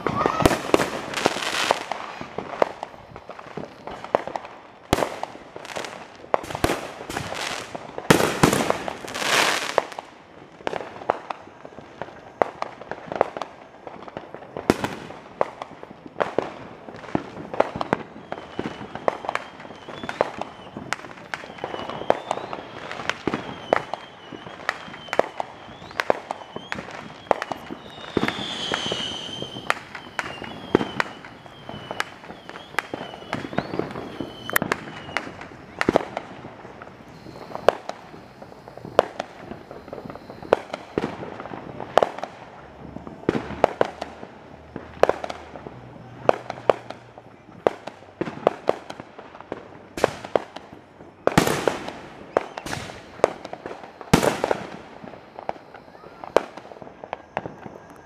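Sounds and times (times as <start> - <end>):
crackling burst: 0.0 - 58.0
fireworks and firecrackers popping: 0.0 - 58.0
high wavering whistle: 17.8 - 36.2, 37.0 - 41.0.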